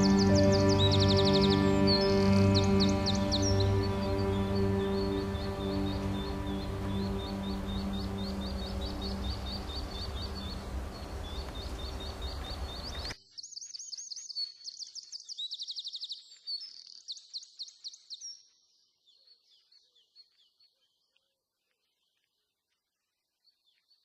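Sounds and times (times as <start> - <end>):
background steady tones: 0.0 - 13.2
small birds chirping: 0.0 - 24.0.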